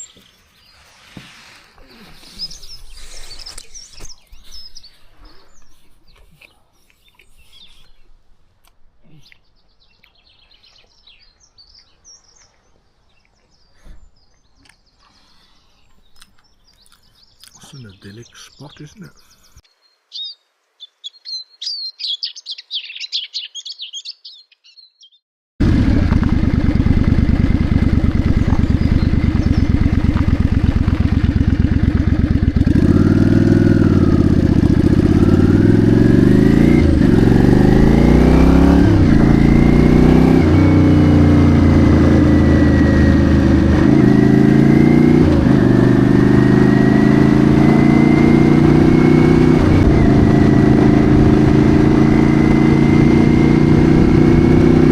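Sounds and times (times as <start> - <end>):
birds chirping: 0.0 - 8.2, 8.9 - 25.2, 26.9 - 44.8
motorcycle engine accelerating: 25.6 - 54.9.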